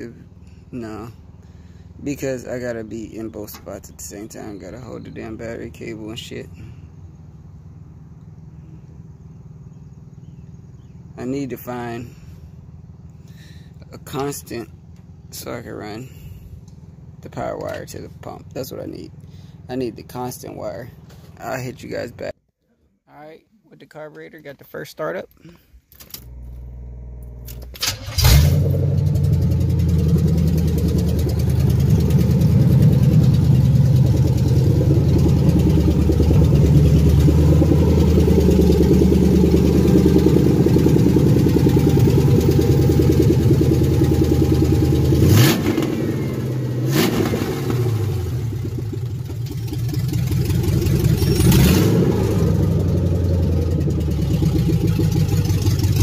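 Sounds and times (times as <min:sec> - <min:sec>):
loud car engine starting and revving: 0:26.2 - 0:56.0.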